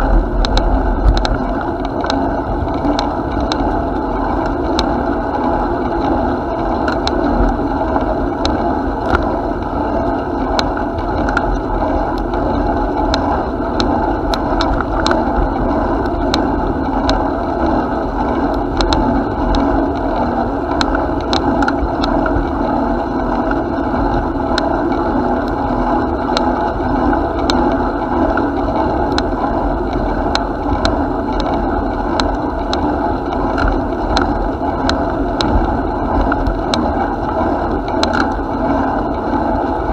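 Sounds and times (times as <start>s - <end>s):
low rumble: 0.0s - 5.8s
bicycle clicks and rattles: 0.0s - 39.9s.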